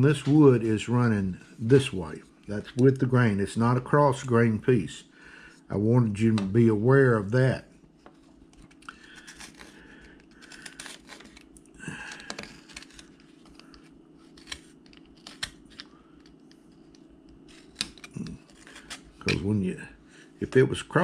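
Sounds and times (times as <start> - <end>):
low steady hum: 0.0 - 21.0
carving knife shaving wood: 8.6 - 11.4, 12.2 - 19.3.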